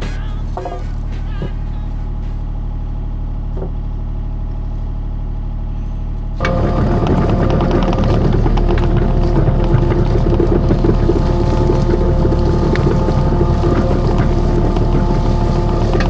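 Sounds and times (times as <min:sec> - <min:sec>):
skid steer engine revving: 0:05.5 - 0:16.0.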